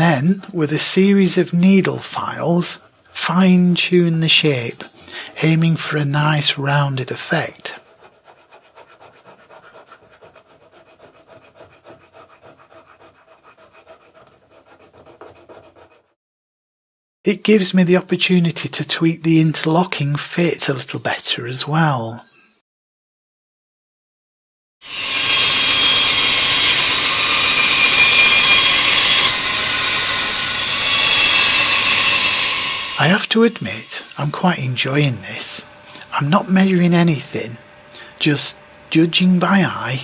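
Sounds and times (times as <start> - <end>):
file rasping on wood: 7.6 - 16.2, 24.8 - 33.1
rotary tool whining: 24.8 - 38.8.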